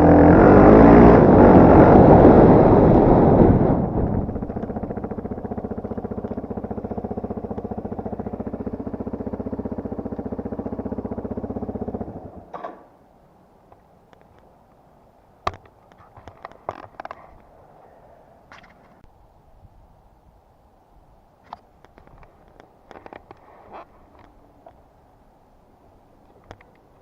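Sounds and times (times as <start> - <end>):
motorcycle engine idling: 4.0 - 12.5.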